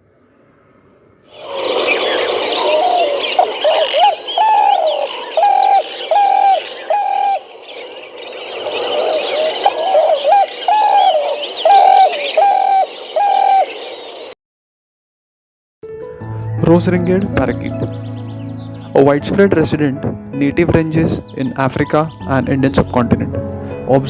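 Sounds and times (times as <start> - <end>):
dove cooing: 1.3 - 14.0
small birds chirping: 1.3 - 14.4, 15.8 - 19.3, 20.5 - 23.3.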